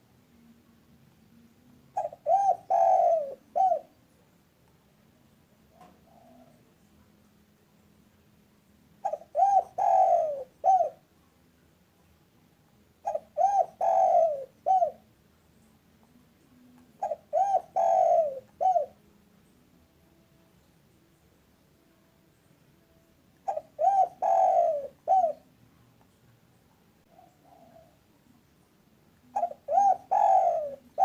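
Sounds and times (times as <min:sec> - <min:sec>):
dove cooing: 0:01.9 - 0:04.0, 0:05.7 - 0:06.8, 0:09.0 - 0:11.1, 0:13.0 - 0:15.1, 0:16.7 - 0:19.0, 0:23.4 - 0:25.5, 0:27.1 - 0:28.2, 0:29.2 - 0:31.0.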